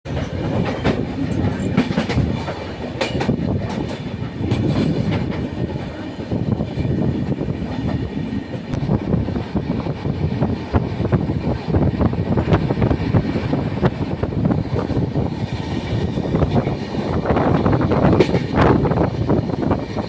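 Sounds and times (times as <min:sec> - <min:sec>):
train rumbling on rails: 0:00.0 - 0:20.0
wheels clacking over rail joints: 0:00.1 - 0:06.9, 0:12.4 - 0:20.0.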